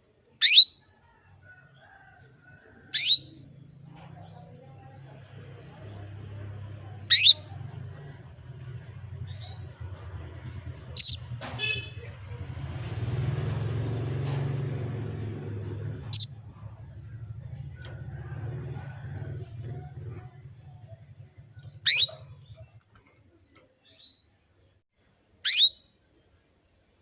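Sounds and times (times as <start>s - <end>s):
canary sharp sweeping chirps: 0.3s - 0.8s, 2.9s - 3.5s, 7.0s - 7.6s, 10.9s - 12.3s, 13.0s - 17.9s, 21.0s - 22.8s, 25.4s - 25.9s.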